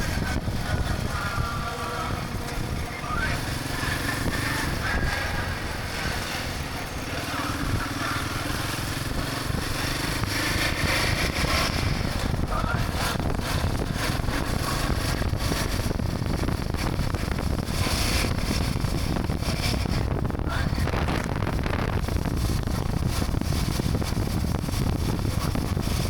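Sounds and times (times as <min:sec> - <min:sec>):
motorcycle engine running: 0:00.0 - 0:26.0
road noise: 0:00.0 - 0:26.0.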